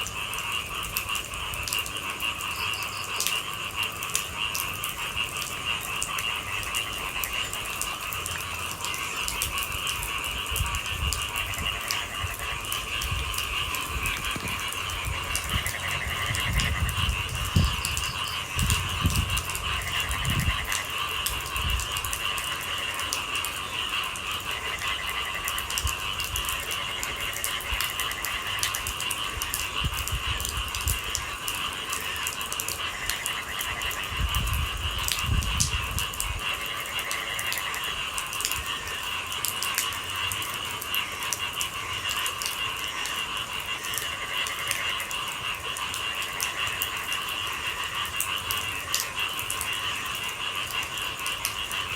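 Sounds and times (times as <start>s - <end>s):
rain pattering: 0.0s - 51.9s
night animals calling: 10.8s - 21.2s.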